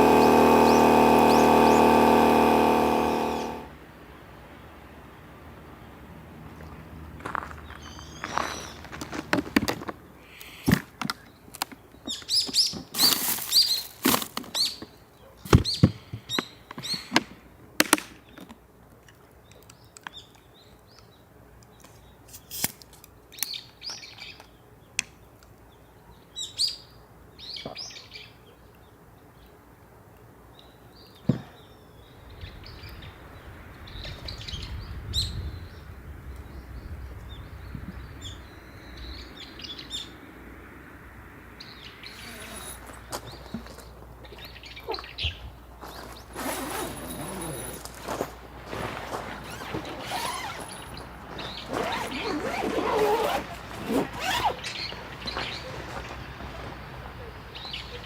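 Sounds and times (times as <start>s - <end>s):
small birds chirping: 0.0s - 4.7s, 5.8s - 9.1s, 41.6s - 48.2s, 49.3s - 58.0s.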